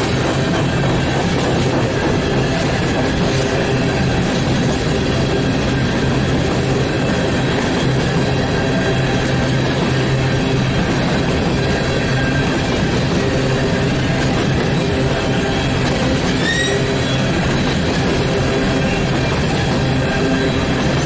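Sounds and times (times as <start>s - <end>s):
train wheels rumbling on rail: 0.0s - 21.0s
faint wheel squeal: 16.3s - 17.3s.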